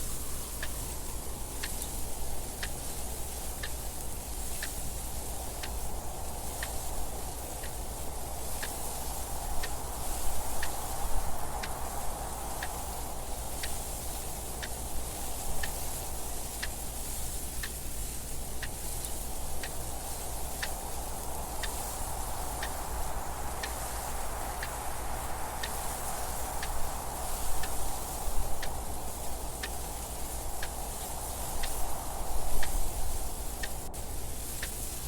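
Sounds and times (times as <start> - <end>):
wind noise: 0.0 - 35.0
clock ticking: 0.5 - 4.9, 5.5 - 11.0, 18.6 - 23.0, 23.6 - 31.8, 32.6 - 34.9.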